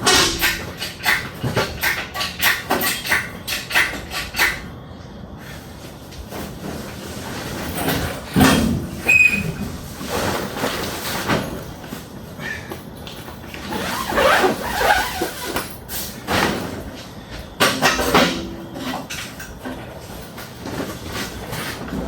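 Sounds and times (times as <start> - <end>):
scraping and clunks: 0.0 - 4.7, 6.1 - 13.9
high squeak: 9.0 - 9.8.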